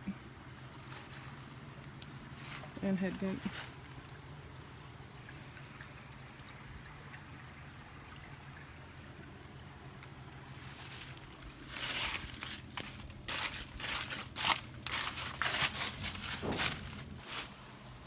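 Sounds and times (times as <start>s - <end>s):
constant low hum: 0.0s - 18.0s
rustling or scraping noise: 10.5s - 18.0s.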